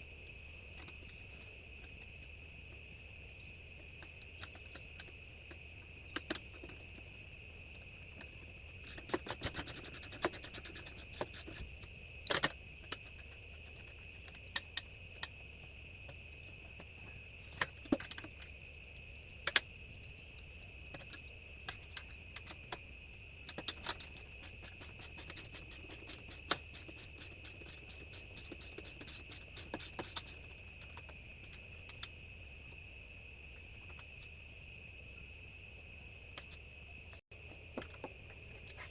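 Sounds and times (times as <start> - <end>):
ratchet spanner clicking: 8.8 - 11.7, 23.5 - 30.5.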